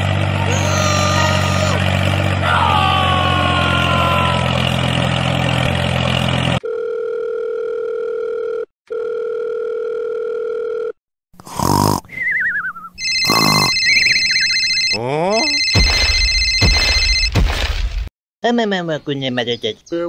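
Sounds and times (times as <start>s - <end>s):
engine-like hum: 0.0s - 6.6s
cartoon sound effects: 0.4s - 1.9s, 13.0s - 17.2s
two-tone telephone beep: 13.0s - 17.3s.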